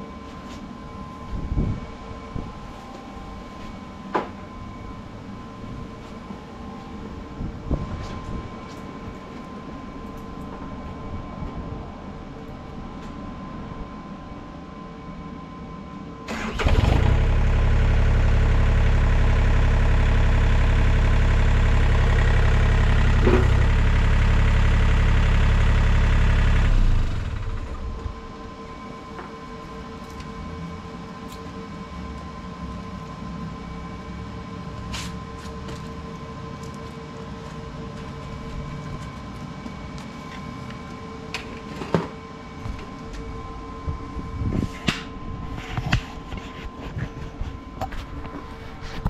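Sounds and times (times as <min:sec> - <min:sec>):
engine starting and idling: 0:16.3 - 0:28.0.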